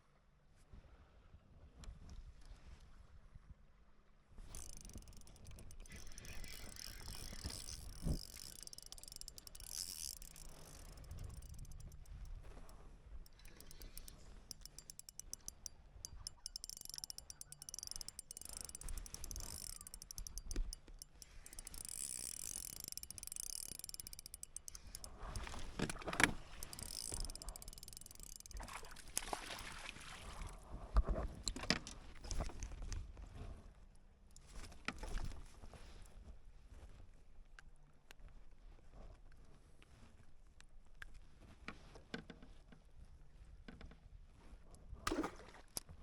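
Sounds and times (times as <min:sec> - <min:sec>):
gear knocking against kayak: 0:04.5 - 0:12.7, 0:13.3 - 0:29.4
rapid mechanical ticking: 0:04.5 - 0:12.7, 0:13.3 - 0:29.3.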